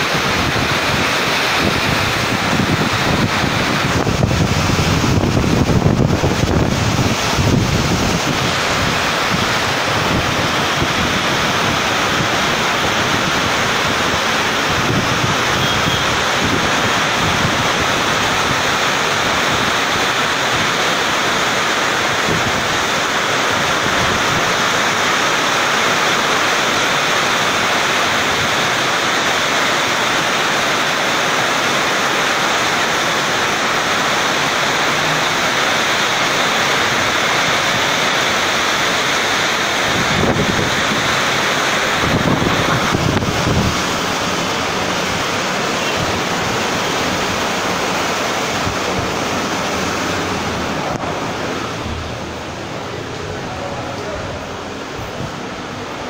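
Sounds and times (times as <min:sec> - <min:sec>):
wind rumbling on microphone: 0:00.0 - 0:18.7, 0:39.8 - 0:52.9
heavy rain pouring: 0:00.0 - 0:56.0.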